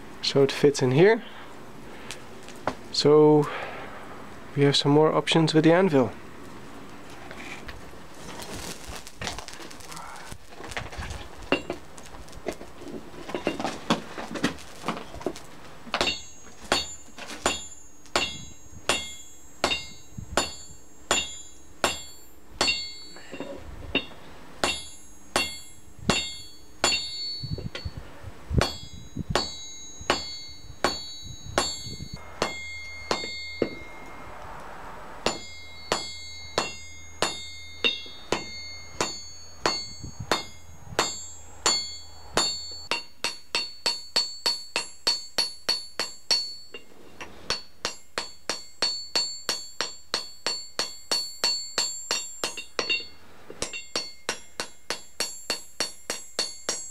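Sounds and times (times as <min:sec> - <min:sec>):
hammer striking metal on anvil: 0:15.9 - 0:28.0, 0:28.6 - 0:56.9.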